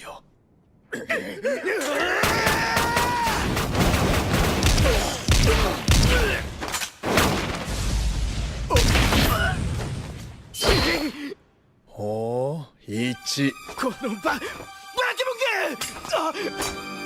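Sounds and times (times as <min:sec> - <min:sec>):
rapid gunshots: 0:02.2 - 0:07.9.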